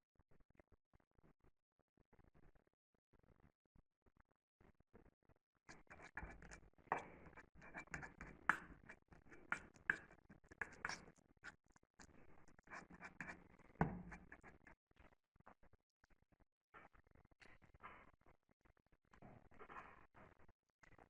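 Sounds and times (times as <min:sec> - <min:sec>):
scratching and rustling: 0:05.7 - 0:11.6, 0:12.6 - 0:14.7.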